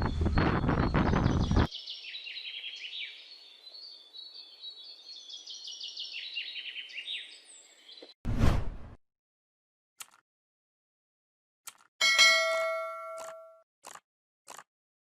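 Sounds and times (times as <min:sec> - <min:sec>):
small bird chirping: 0:00.0 - 0:08.2.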